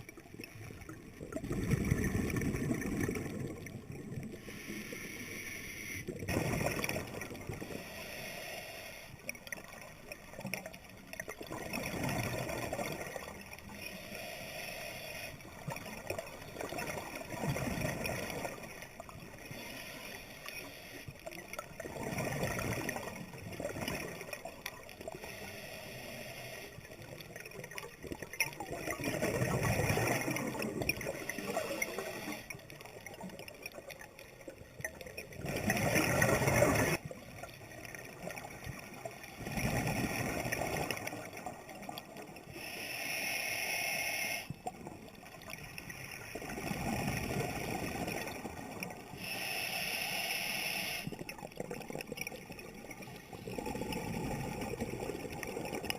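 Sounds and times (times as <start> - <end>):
exhaled bubbles underwater: 0.0 - 4.6, 6.0 - 7.9, 9.2 - 14.0, 15.4 - 19.6, 21.1 - 25.4, 26.7 - 42.6, 44.5 - 49.3, 51.0 - 55.9
hissing breath through regulator: 4.3 - 6.1, 7.6 - 9.3, 13.7 - 15.6, 19.4 - 21.3, 25.1 - 27.0, 31.1 - 32.8, 42.5 - 44.6, 49.1 - 51.2.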